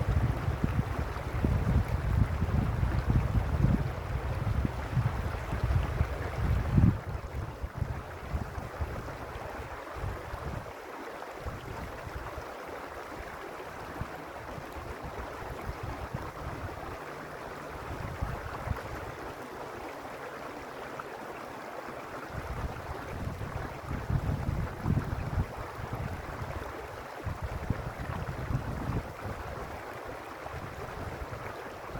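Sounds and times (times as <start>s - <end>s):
wind buffeting microphone: 0.0s - 9.3s, 13.8s - 19.2s, 22.3s - 31.9s
stream flowing over stones: 0.0s - 31.9s.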